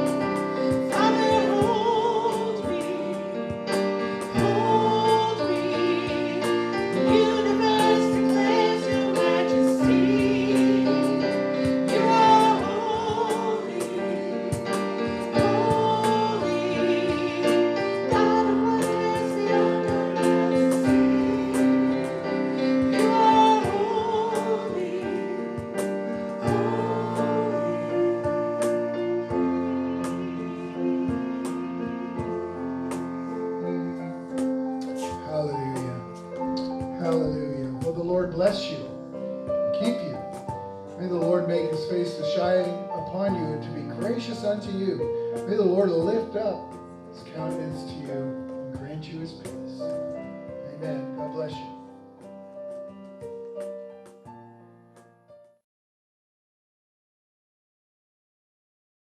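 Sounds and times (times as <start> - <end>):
congregation singing a hymn: 0.0 - 39.0
piano accompaniment: 0.0 - 55.6.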